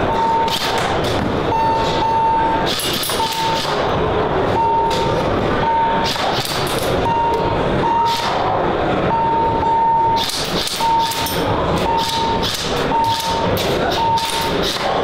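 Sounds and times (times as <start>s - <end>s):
electronic beep: 0.0s - 0.6s, 1.5s - 3.6s, 4.5s - 6.1s, 7.0s - 8.2s, 9.1s - 14.5s
busy hall crowd din: 0.0s - 15.0s.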